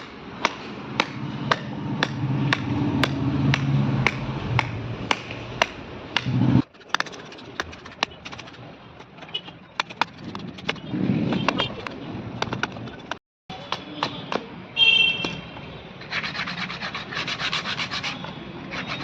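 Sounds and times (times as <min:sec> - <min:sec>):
hammer tapping on wood: 0:00.0 - 0:08.4
tool clicks and taps: 0:00.0 - 0:10.8, 0:11.4 - 0:14.5.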